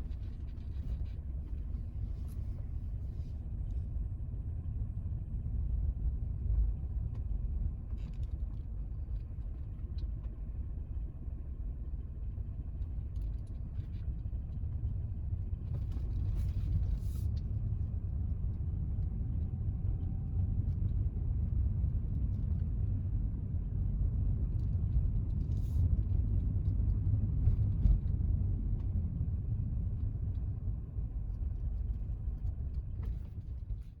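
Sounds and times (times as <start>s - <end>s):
car driving on unpaved road: 0.0s - 34.0s.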